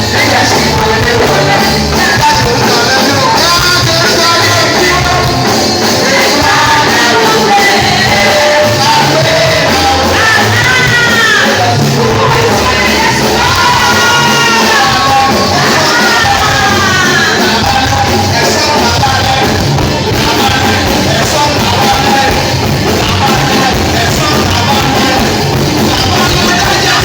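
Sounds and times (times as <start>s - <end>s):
congregation shouting: 0.0s - 27.0s
live band playing: 0.0s - 27.0s
person singing: 0.0s - 27.0s.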